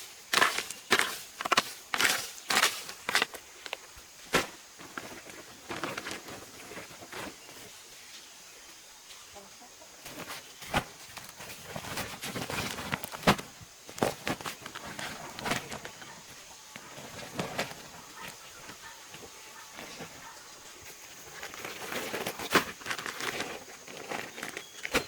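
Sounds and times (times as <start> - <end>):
chickens clucking: 15.2 - 20.8.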